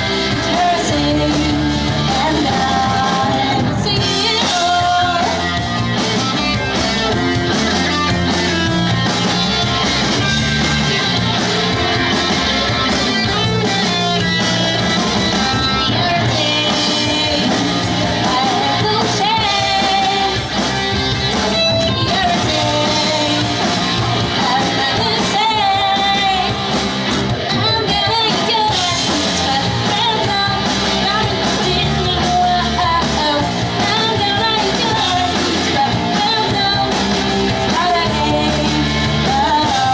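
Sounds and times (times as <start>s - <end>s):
person singing lead vocal: 0.0s - 7.2s, 15.6s - 39.9s
live pop-punk band playing: 0.0s - 39.9s.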